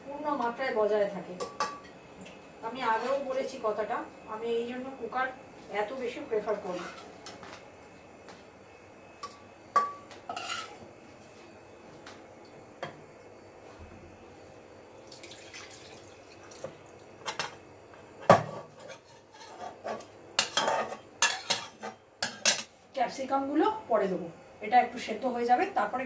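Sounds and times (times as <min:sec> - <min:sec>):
metal pots and utensils clanking: 0:01.4 - 0:01.9, 0:09.2 - 0:10.8, 0:18.3 - 0:22.7.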